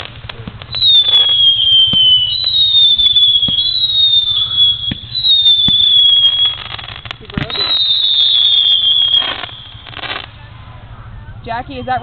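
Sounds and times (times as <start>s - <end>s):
small pops and crackles: 0.0s - 10.4s
whistling fireworks: 0.0s - 12.0s.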